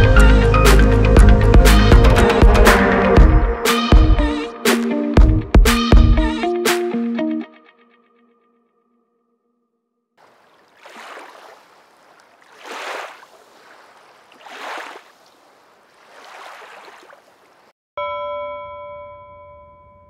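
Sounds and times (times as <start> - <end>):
sea waves surging: 10.2 - 17.7.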